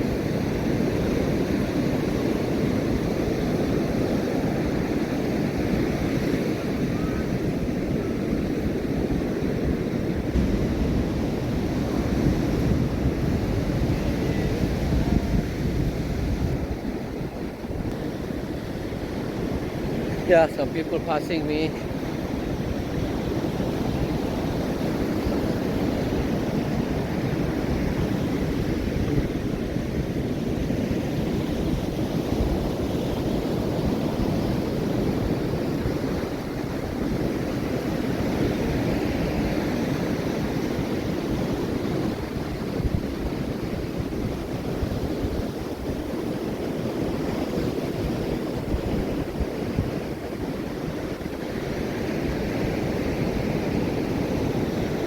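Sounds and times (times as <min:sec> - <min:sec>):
ocean surf washing onto beach: 0:00.0 - 0:55.0
wind buffeting microphone: 0:00.0 - 0:55.0.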